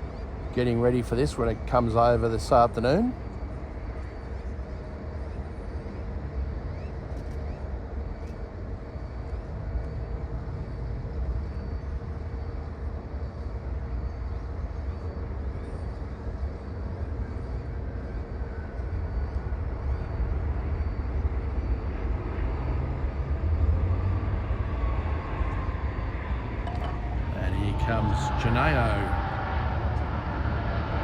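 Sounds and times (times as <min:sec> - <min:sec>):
faint even hum: 0:00.0 - 0:31.0
jet engines rumbling: 0:24.8 - 0:31.0.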